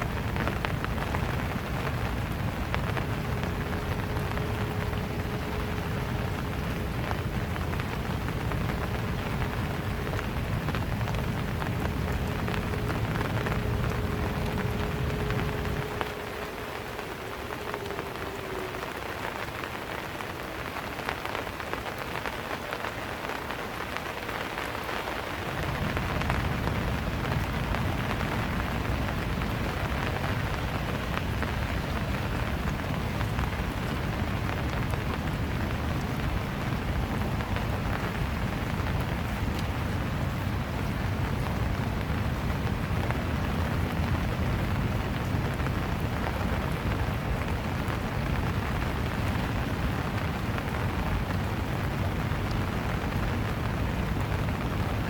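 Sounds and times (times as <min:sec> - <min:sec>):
low rumble: 0:00.0 - 0:22.3
faint steady hum: 0:00.0 - 0:55.0
steady rain falling: 0:00.0 - 0:55.0.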